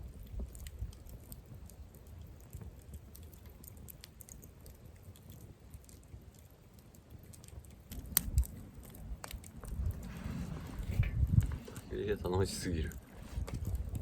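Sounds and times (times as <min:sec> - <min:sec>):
campfire crackling: 0:00.0 - 0:14.0
low rumble: 0:07.9 - 0:12.6.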